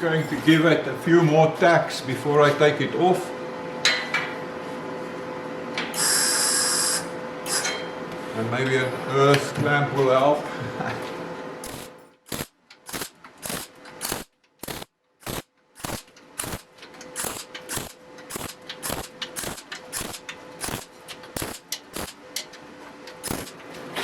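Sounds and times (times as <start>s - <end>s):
electric welder crackling: 11.6s - 23.8s.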